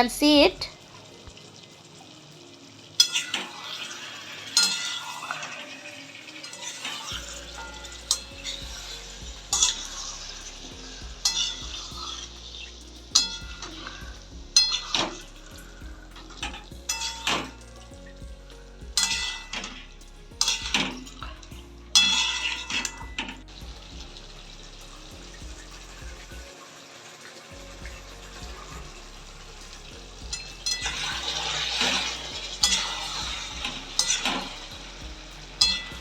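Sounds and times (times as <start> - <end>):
chicken frying in oil: 0.0 - 36.0
utensil scraping and clanking pan: 3.0 - 17.9, 28.2 - 36.0.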